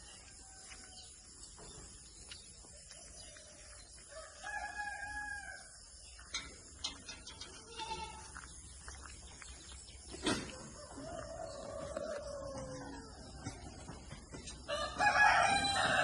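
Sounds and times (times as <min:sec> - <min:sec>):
rooster crowing: 0:04.1 - 0:05.7, 0:10.5 - 0:13.9, 0:14.6 - 0:16.0.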